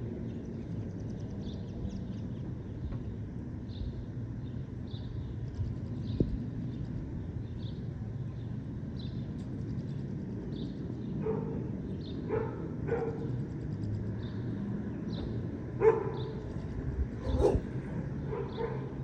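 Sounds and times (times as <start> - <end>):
low city rumble: 0.0 - 19.0
distant dog barking: 12.3 - 13.3, 15.8 - 16.5, 17.2 - 19.0.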